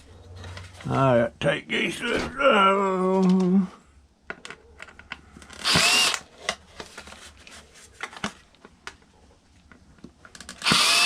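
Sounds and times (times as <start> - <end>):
screws and plastic parts clicking: 4.3 - 7.2, 9.6 - 11.0
cordless screw gun whining: 5.5 - 6.3, 10.6 - 11.0.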